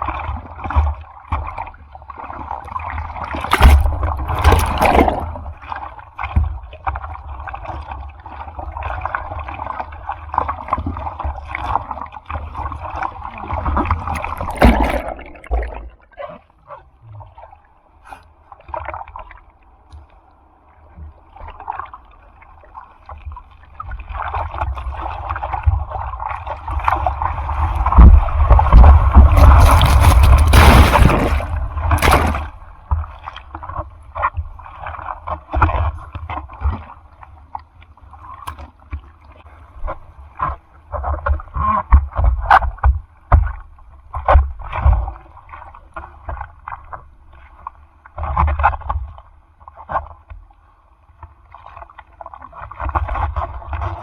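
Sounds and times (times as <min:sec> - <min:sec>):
seawater splashing and rushing: 0:02.1 - 0:06.2, 0:08.2 - 0:16.1, 0:24.0 - 0:33.0.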